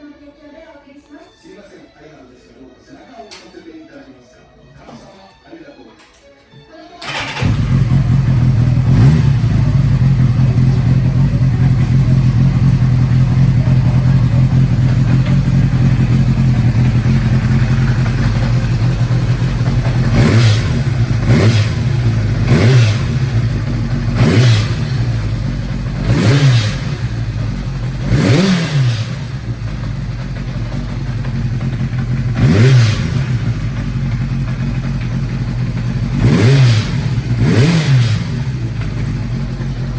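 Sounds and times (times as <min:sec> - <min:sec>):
motorcycle engine idling and revving: 0:07.0 - 0:39.9
light engine tapping: 0:10.1 - 0:28.6, 0:29.4 - 0:39.9.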